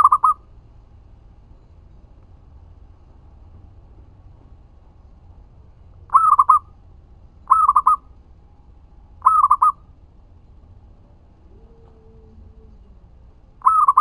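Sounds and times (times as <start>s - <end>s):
dove cooing: 0.0s - 0.4s, 6.1s - 6.7s, 7.5s - 8.0s, 9.2s - 9.8s, 11.3s - 14.0s.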